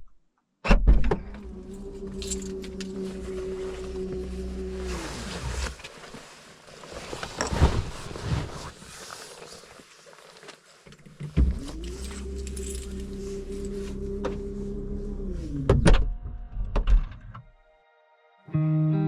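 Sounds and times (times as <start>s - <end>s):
guitar music: 18.4s - 19.0s.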